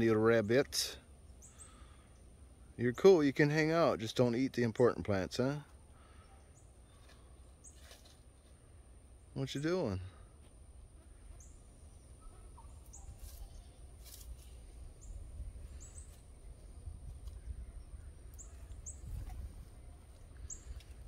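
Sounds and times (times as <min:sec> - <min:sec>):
faint bird chirps: 0:01.2 - 0:02.8, 0:05.7 - 0:10.3, 0:11.0 - 0:21.0.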